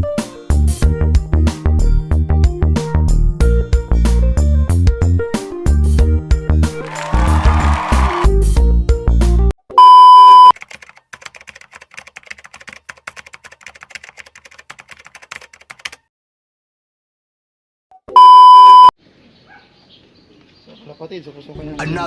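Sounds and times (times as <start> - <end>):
background music: 0.0 - 9.5
loud steady beep: 9.8 - 10.5, 18.2 - 18.9
faint typing clicks: 10.6 - 16.0.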